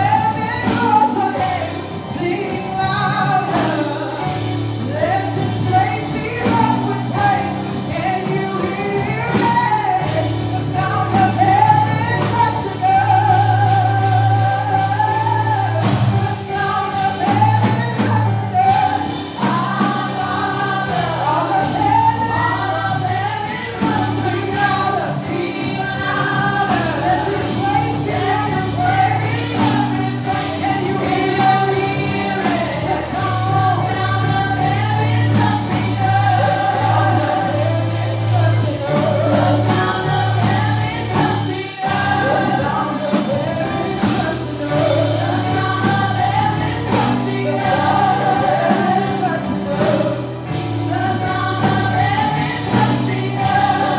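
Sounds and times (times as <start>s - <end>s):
choir singing over a band: 0.0s - 53.9s.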